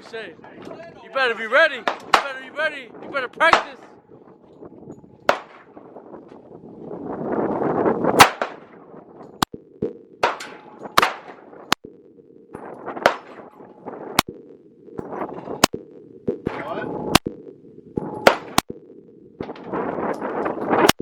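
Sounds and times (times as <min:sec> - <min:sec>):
handgun shots: 0:05.3 - 0:05.7, 0:08.2 - 0:08.7, 0:18.3 - 0:18.6.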